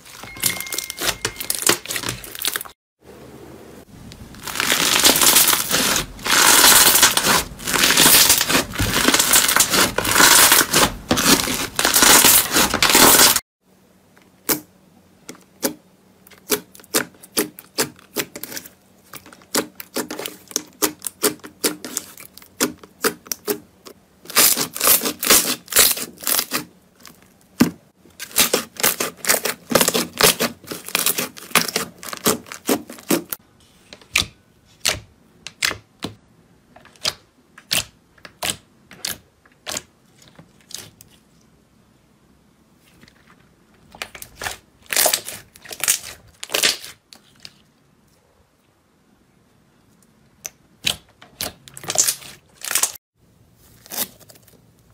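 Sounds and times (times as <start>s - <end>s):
slime crackling and crunching: 0.0s - 2.7s, 4.3s - 13.4s, 24.3s - 27.3s, 28.2s - 33.4s, 43.9s - 47.5s, 50.8s - 53.0s, 53.6s - 54.9s.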